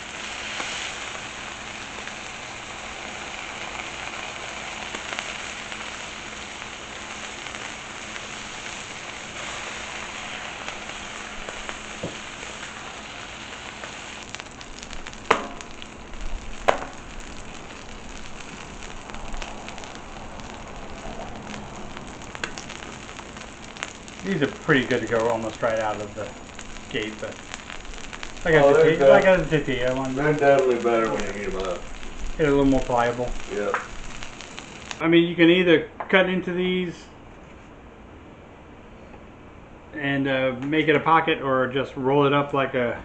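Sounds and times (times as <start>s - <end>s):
food sizzling on a griddle: 0.0s - 35.0s
sharp knocks: 15.3s - 15.6s.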